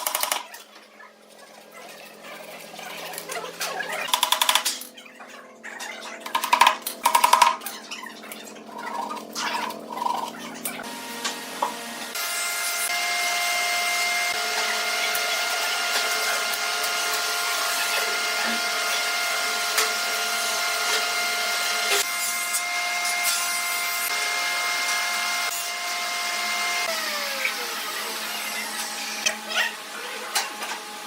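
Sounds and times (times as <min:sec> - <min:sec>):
power tool whining on wood: 0:10.4 - 0:31.0.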